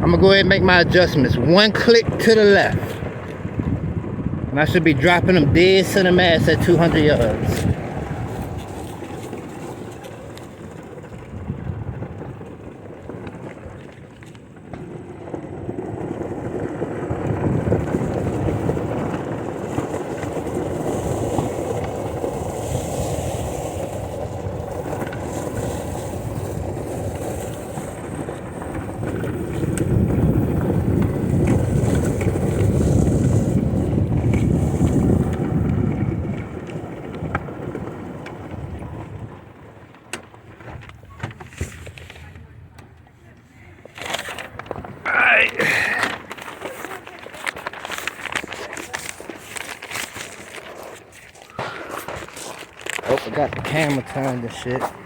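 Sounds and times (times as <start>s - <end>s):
wind buffeting microphone: 0.0s - 39.8s.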